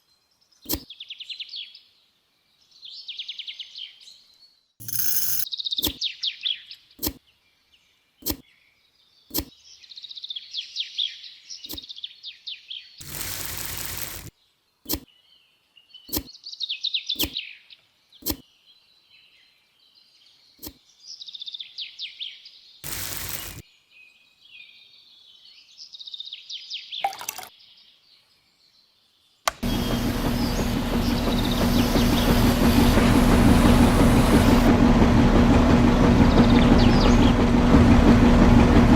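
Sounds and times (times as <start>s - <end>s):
birds chirping: 0.0s - 34.7s, 36.2s - 37.5s
sharp click: 0.7s - 0.9s, 4.8s - 6.0s, 7.0s - 7.2s, 8.2s - 8.4s, 9.3s - 9.5s, 11.7s - 11.9s, 14.9s - 15.1s, 16.1s - 16.3s, 17.2s - 17.4s, 18.2s - 18.4s, 29.5s - 29.7s.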